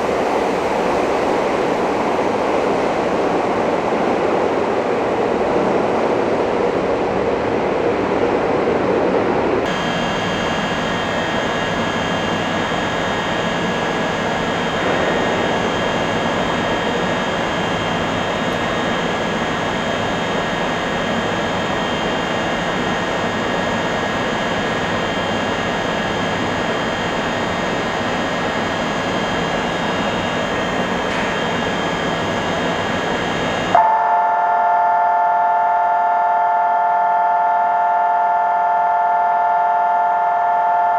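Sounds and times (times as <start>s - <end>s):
loud steady tone: 9.6s - 40.9s
high whines: 9.7s - 33.9s
train equipment humming: 9.7s - 33.9s.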